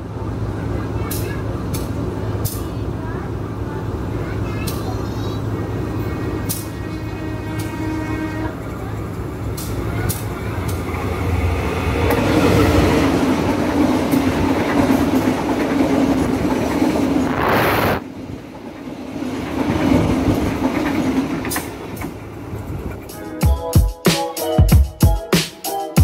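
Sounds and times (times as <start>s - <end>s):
train rushing past: 0.0s - 23.4s
train wheels clattering: 19.3s - 23.2s.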